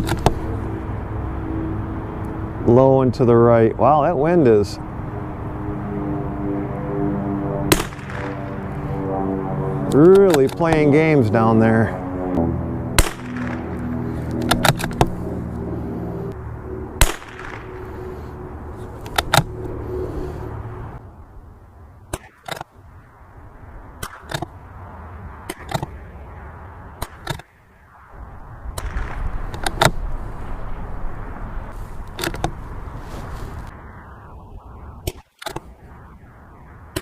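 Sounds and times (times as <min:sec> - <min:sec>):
wind rumble on microphone: 0:00.0 - 0:37.0
rifle shots: 0:07.7 - 0:08.6, 0:13.0 - 0:13.8, 0:17.0 - 0:17.8, 0:28.8 - 0:29.8.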